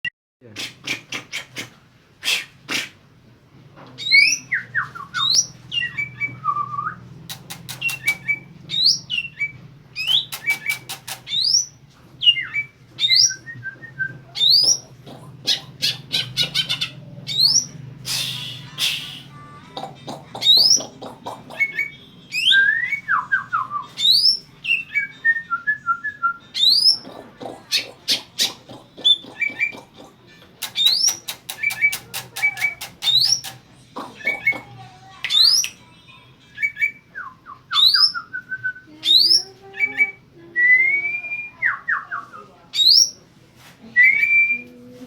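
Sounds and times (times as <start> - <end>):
bird singing whistles: 7.8 - 14.8, 21.6 - 27.0, 30.7 - 33.6, 36.6 - 43.2.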